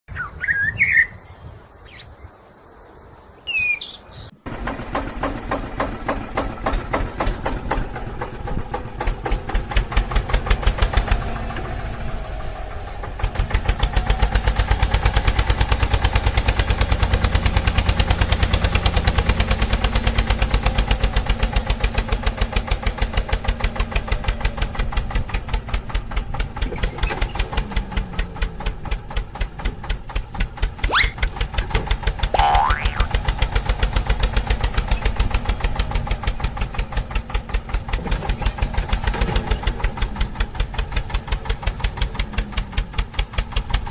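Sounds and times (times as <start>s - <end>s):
engine chugging: 4.5s - 43.9s
short rising squeal: 30.8s - 31.4s.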